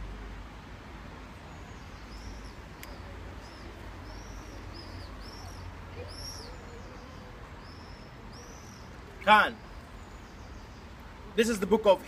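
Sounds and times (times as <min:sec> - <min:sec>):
small bird chirping: 0:01.5 - 0:11.0.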